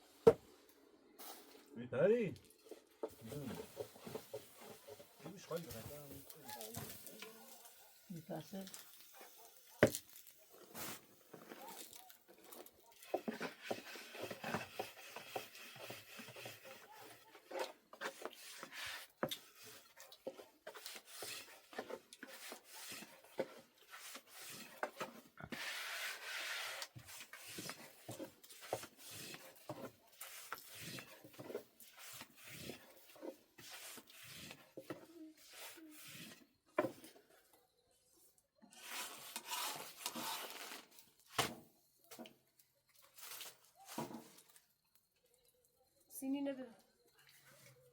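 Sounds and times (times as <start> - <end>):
dough rubbing and scraping on wood: 2.7 - 7.9, 8.6 - 37.2, 38.7 - 41.0.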